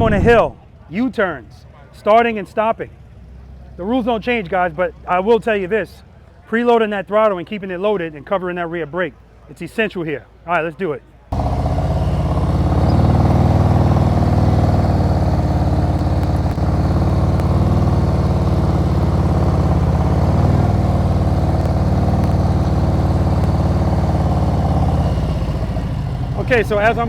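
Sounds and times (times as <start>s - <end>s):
motorcycle engine at low revs: 11.3s - 27.0s.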